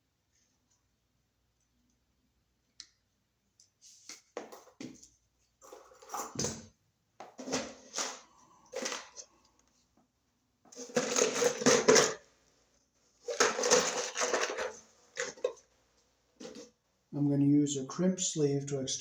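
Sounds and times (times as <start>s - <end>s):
tools rattling and clattering: 10.7s - 12.2s, 13.2s - 15.6s.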